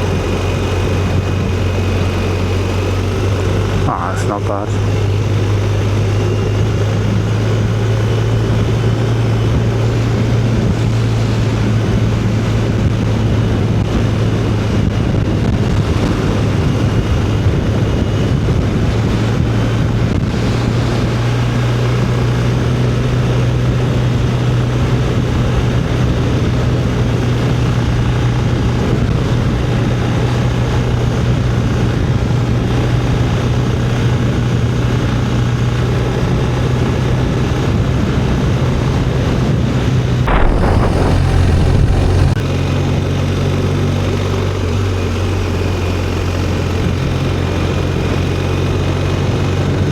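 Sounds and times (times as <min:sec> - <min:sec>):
motorcycle engine drone: 0:40.3 - 0:42.4
rushing wind: 0:40.3 - 0:42.4.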